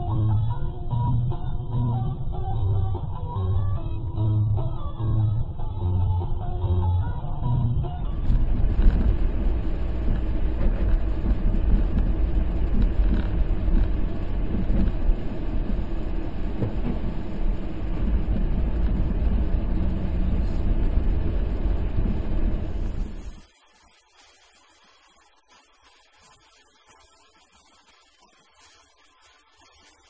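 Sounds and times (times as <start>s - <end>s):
vehicle engine and road noise: 0.0s - 23.5s.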